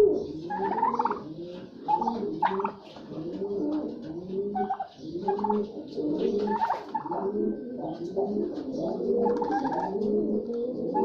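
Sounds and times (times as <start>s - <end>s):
turkeys low cooing: 0.0s - 11.0s
higher bird calls and chirps: 0.1s - 3.1s, 4.5s - 10.0s.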